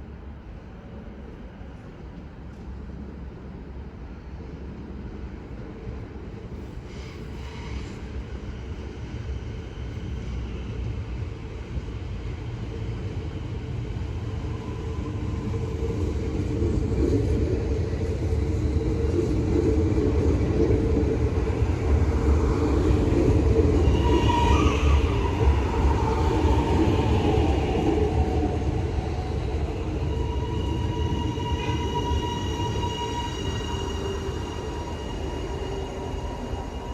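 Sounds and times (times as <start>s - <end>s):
train rumbling on track: 0.0s - 36.9s
train wheels squealing: 6.6s - 10.8s, 13.4s - 16.4s, 21.0s - 36.9s.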